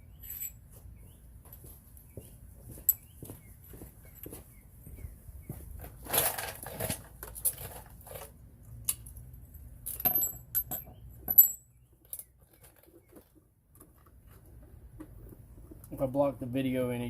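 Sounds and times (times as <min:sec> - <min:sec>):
metal tools clicking and clinking: 0:06.1 - 0:12.3.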